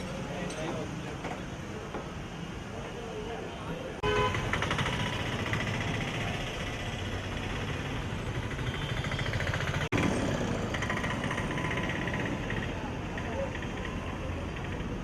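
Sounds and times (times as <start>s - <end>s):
road noise: 0.0s - 15.0s
vehicle engines running: 4.2s - 15.0s.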